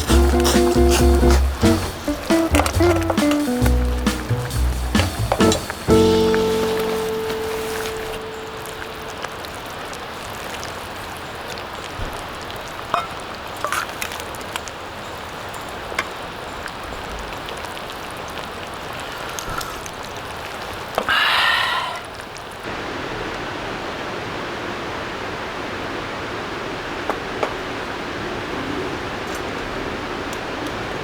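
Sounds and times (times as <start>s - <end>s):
rustling noise: 0.0s - 9.4s
campfire crackling and popping: 0.0s - 21.1s.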